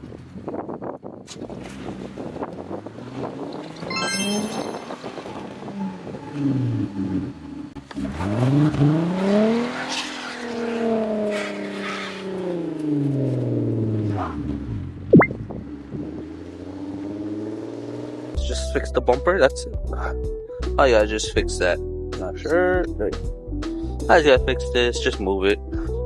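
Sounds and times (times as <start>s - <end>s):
sharp rising squeak: 3.9s - 5.5s
car engine revving: 4.8s - 18.4s.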